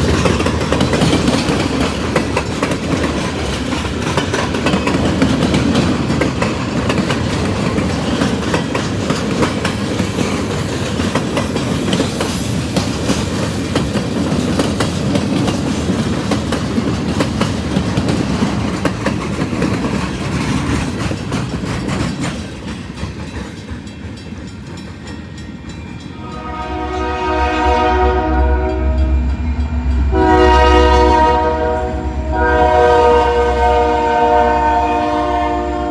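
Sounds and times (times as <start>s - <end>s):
railcar wheels clacking over joints: 0.0s - 27.7s
train horn: 26.1s - 35.9s.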